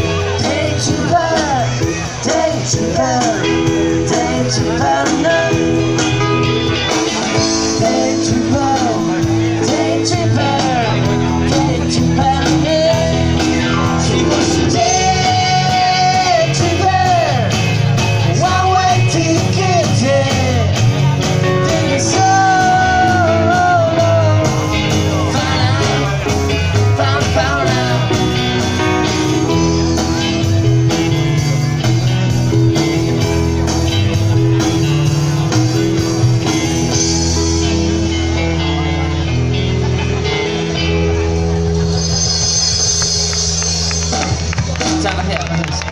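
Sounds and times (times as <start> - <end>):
lead singer singing: 0.0 - 30.4
live rock band playing: 0.0 - 45.9.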